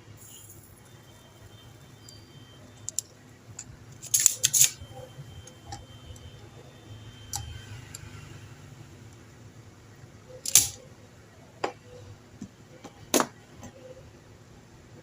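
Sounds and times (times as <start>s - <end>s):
hand tools clicking on small parts: 2.8s - 4.8s, 10.4s - 10.8s.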